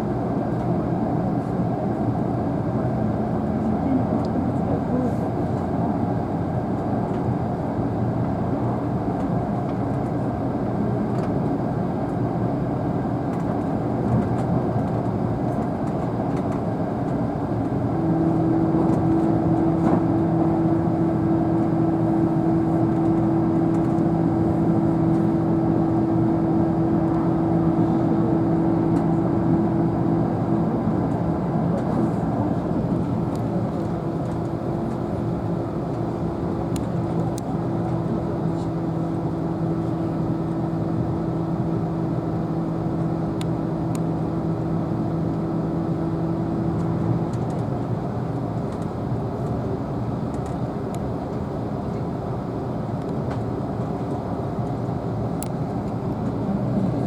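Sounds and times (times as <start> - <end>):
steady hum: 17.8 - 47.2, 54.7 - 57.0.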